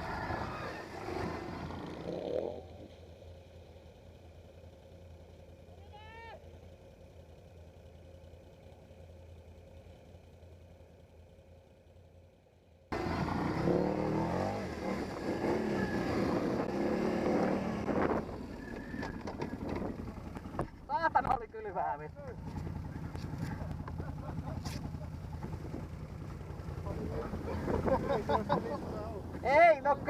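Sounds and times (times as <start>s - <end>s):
quad bike engine revving: 0.0s - 2.9s, 12.9s - 20.8s.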